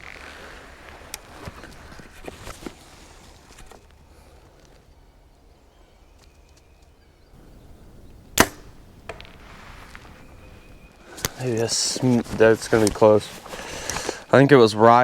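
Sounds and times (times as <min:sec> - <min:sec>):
bowstring snapping: 0:08.3 - 0:09.4
arrow knock: 0:08.4 - 0:09.4.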